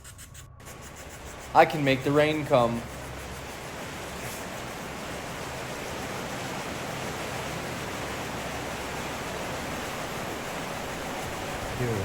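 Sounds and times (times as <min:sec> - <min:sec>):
heavy rain pouring: 0:03.4 - 0:12.0.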